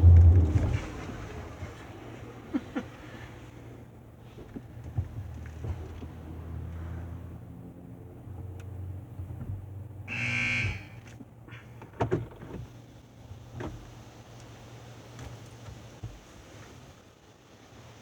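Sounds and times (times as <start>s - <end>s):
car wash machinery hum: 0.0s - 7.3s.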